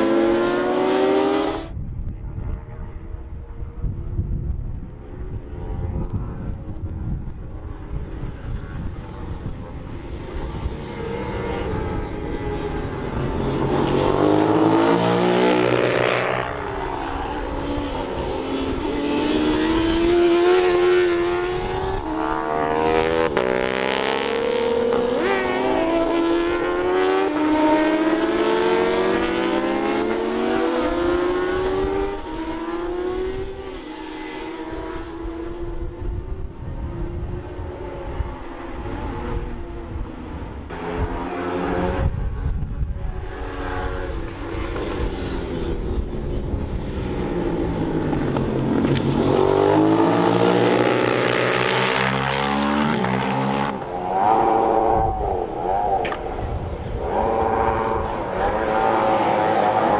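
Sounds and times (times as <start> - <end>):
racing motorcycles passing: 0.0 - 3.9, 5.0 - 59.9.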